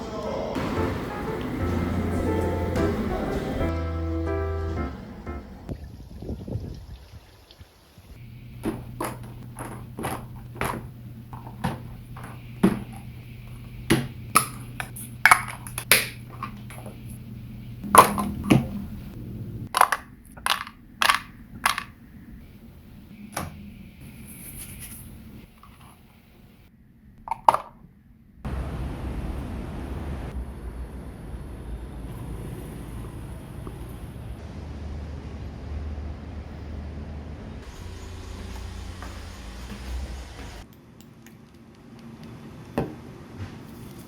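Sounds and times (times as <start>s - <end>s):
low steady hum: 8.1s - 44.0s
rackets hitting tennis balls: 8.6s - 17.0s.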